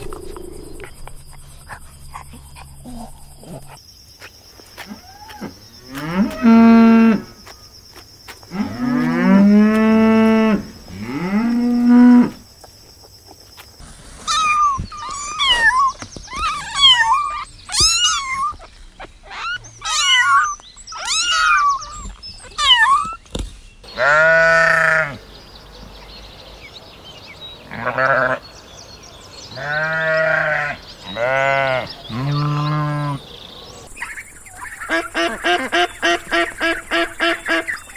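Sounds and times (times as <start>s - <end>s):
high wavering animal calls: 0.0s - 3.8s, 14.2s - 23.2s
small birds chirping: 0.0s - 6.6s, 10.7s - 37.9s
sheep bleating: 24.0s - 25.2s, 27.7s - 28.4s, 29.6s - 33.2s.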